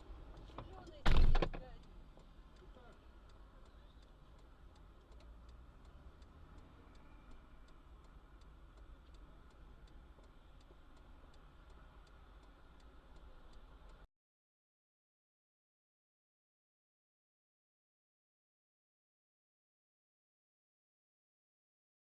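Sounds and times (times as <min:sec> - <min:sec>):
faint regular ticking: 0:00.0 - 0:14.0.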